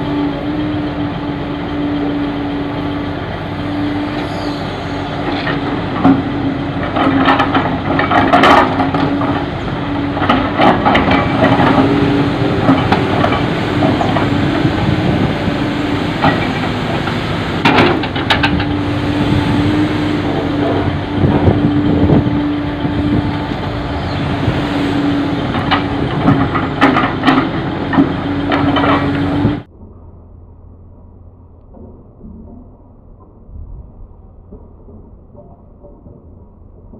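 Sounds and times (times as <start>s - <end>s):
heavy diesel machinery droning: 0.0s - 36.9s
knocks and clatter: 5.2s - 15.3s, 16.1s - 18.8s, 25.4s - 29.7s, 31.6s - 33.7s, 34.4s - 36.9s.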